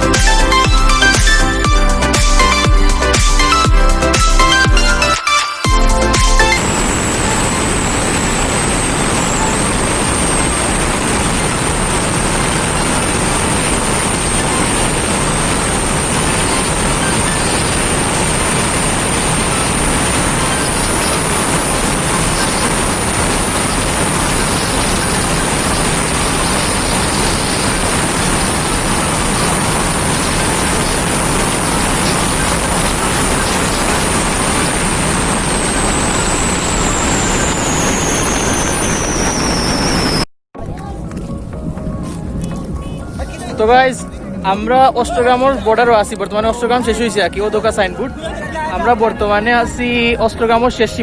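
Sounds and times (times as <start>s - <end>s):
motorcycle engine: 0.0s - 40.3s
thin high whistle: 0.0s - 40.3s
wind rush over microphone: 5.7s - 51.0s.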